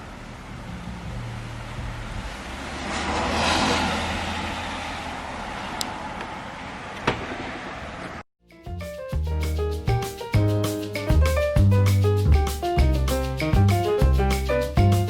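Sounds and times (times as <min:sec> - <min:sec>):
vehicle passing by: 0:00.0 - 0:08.2.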